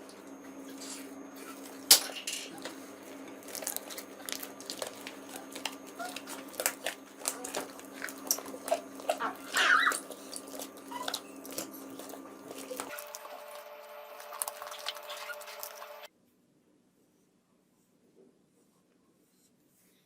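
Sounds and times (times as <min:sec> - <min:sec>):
squeaky slime squelch: 0:03.4 - 0:16.1.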